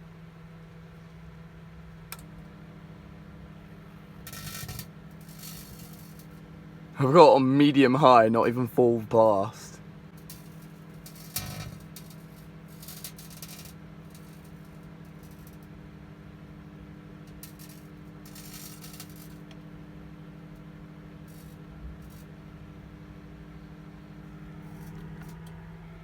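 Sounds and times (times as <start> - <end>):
microwave oven humming: 0.0 - 26.0
crackling of arcing foil: 4.2 - 6.4, 10.1 - 15.8, 17.2 - 19.6, 21.2 - 22.3.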